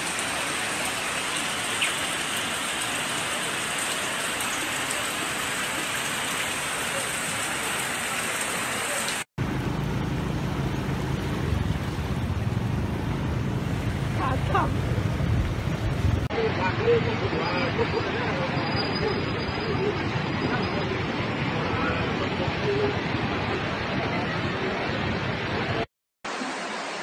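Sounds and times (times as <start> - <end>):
heavy rain hissing: 0.0 - 24.8
steady low rumble: 9.4 - 16.3.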